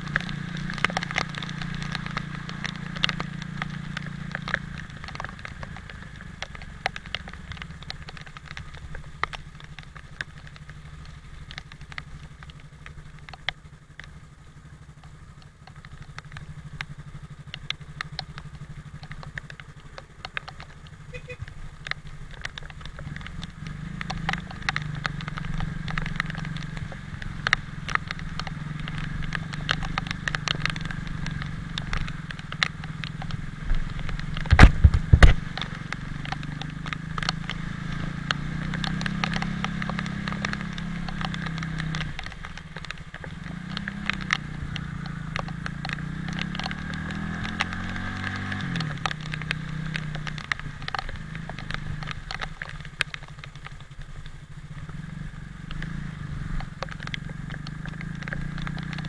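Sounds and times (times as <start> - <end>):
motorcycle engine running: 0.0 - 59.0
rain hitting microphone: 0.0 - 59.0
heavy low thump: 34.5 - 35.4.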